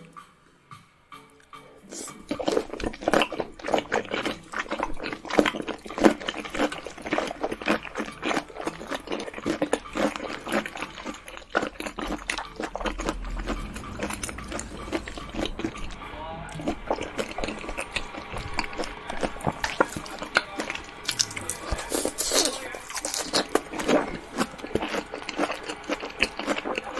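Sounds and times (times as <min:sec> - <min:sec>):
wet crunchy chewing: 0:01.9 - 0:26.9.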